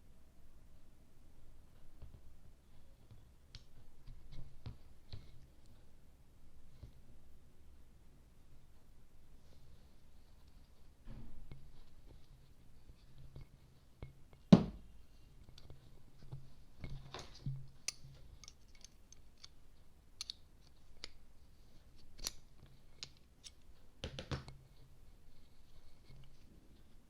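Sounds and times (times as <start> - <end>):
metal parts clicking and knocking: 16.8 - 21.2.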